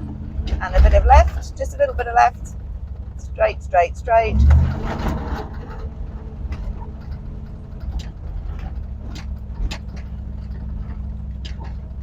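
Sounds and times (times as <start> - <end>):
car engine running: 0.0 - 12.0
car knocks and rattles: 0.0 - 12.0.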